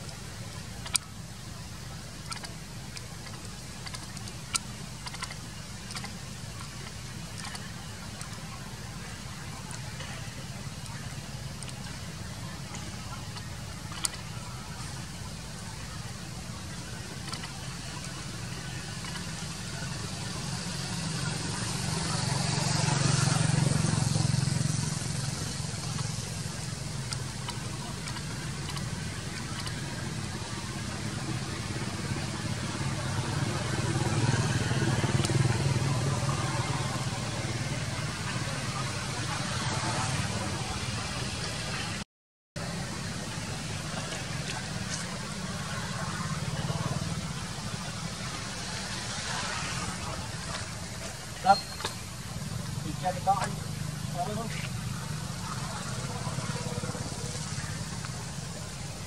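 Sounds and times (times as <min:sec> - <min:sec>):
sharp clicks and ticks: 0:00.0 - 0:21.8, 0:22.4 - 0:37.3
steady low hum: 0:00.0 - 0:42.0.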